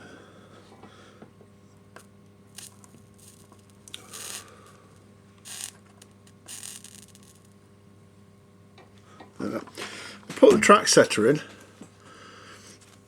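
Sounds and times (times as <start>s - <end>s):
low electrical hum: 0.0s - 13.0s
flux sizzling under soldering iron: 1.9s - 7.7s.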